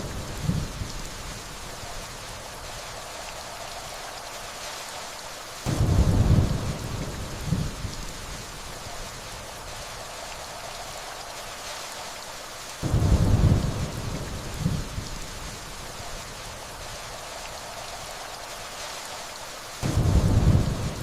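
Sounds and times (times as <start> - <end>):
steady rainfall: 0.0 - 21.0
thunder rumbling: 5.7 - 8.4, 12.8 - 15.6, 19.8 - 21.0.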